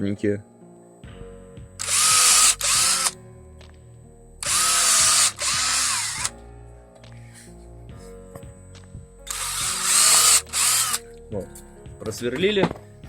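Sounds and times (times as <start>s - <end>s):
cordless drill boring through rubber: 1.8s - 3.2s, 4.4s - 6.3s, 9.3s - 11.0s.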